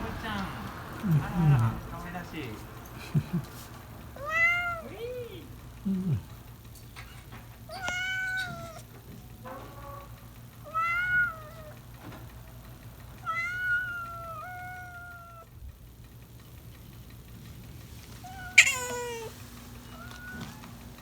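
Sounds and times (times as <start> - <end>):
cat meowing: 4.2 - 6.4, 7.6 - 11.9, 13.2 - 15.5, 18.1 - 20.8.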